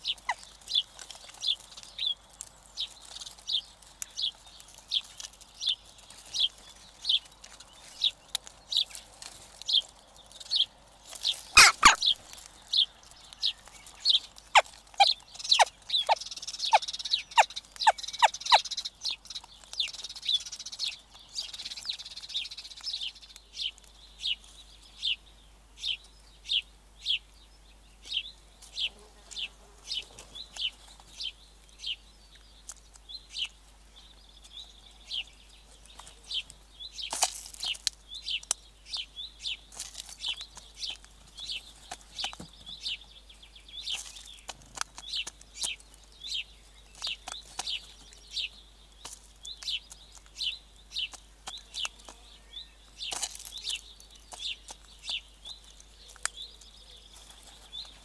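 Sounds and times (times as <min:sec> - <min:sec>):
high bird chirps: 0:11.3 - 0:23.1.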